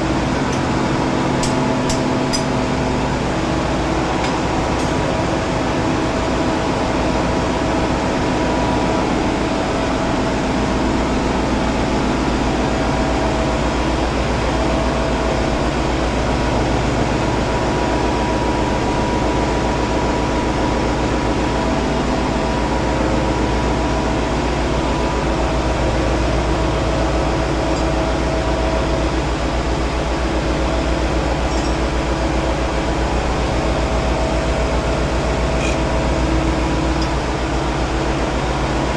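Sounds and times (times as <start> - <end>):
diesel engine running: 0.0 - 10.4, 21.7 - 38.9.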